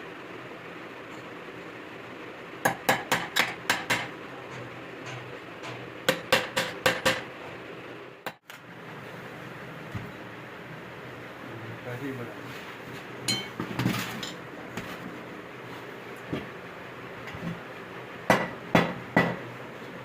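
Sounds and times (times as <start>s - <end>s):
hammer striking metal: 2.6s - 7.2s.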